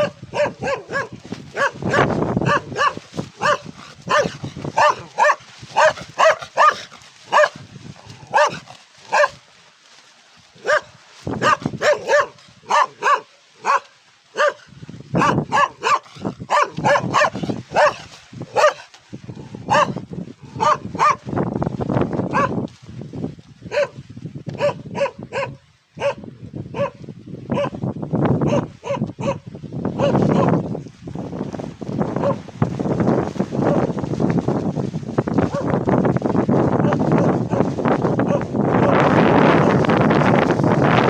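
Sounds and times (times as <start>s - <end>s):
dog barking aggressively: 0.0s - 7.6s, 8.2s - 9.4s, 10.6s - 18.9s, 19.6s - 20.0s, 20.6s - 21.2s, 22.3s - 22.6s, 23.7s - 24.0s, 24.6s - 26.2s, 26.8s - 27.8s, 28.4s - 29.4s, 30.0s - 30.5s, 32.2s - 32.4s, 35.5s - 35.7s, 38.2s - 38.5s.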